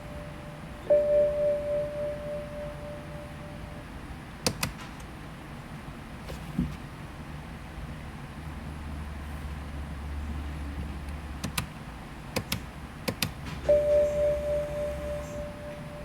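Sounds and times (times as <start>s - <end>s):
electronic chime tone: 0.0s - 3.8s, 13.7s - 16.0s
low hum: 0.0s - 4.0s
sharp clicks in car: 4.4s - 5.1s, 11.1s - 13.6s.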